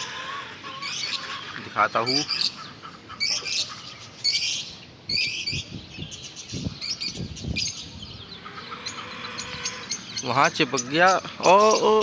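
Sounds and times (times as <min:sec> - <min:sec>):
small cage birds chirping: 0:00.0 - 0:12.0.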